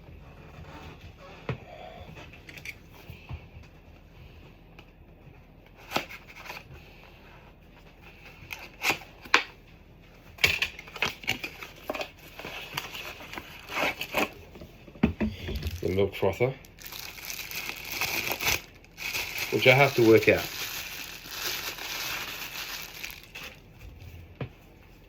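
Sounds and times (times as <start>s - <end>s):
packaging rustling: 10.8s - 14.4s, 15.5s - 23.8s.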